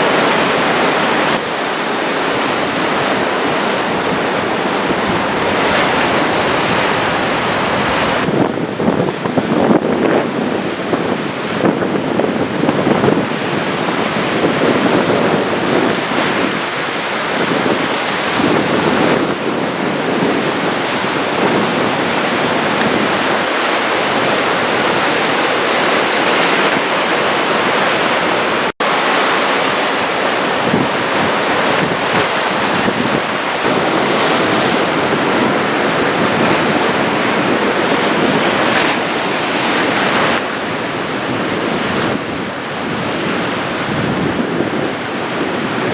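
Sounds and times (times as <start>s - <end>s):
surf breaking: 0.0s - 8.4s, 11.0s - 45.9s
wind buffeting microphone: 0.0s - 45.9s.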